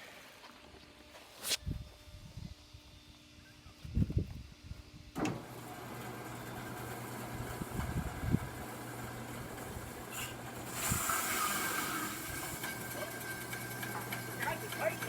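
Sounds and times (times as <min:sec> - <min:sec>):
sawmill motor humming: 0:05.2 - 0:15.0
band blade hissing through log: 0:10.1 - 0:12.3.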